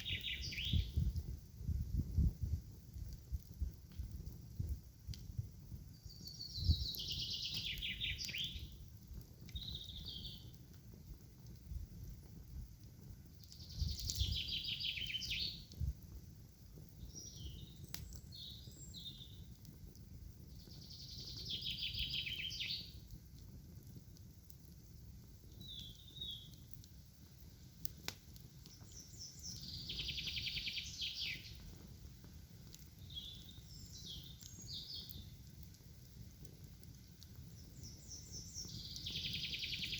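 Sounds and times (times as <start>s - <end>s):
soft bird calls: 0.0s - 1.0s, 5.9s - 8.8s, 9.5s - 10.6s, 13.4s - 15.8s, 17.0s - 19.5s, 20.6s - 23.1s, 25.5s - 26.6s, 28.6s - 31.7s, 32.9s - 35.4s, 37.4s - 39.9s.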